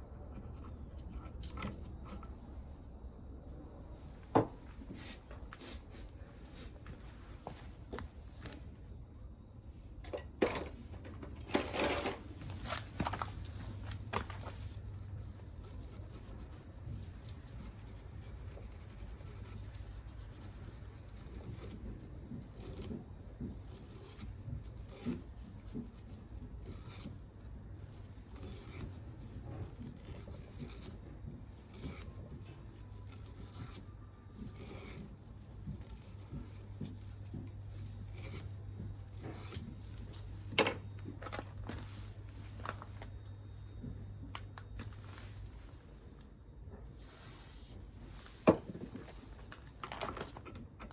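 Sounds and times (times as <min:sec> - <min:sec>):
rubbing and scraping: 0:44.7 - 0:50.9.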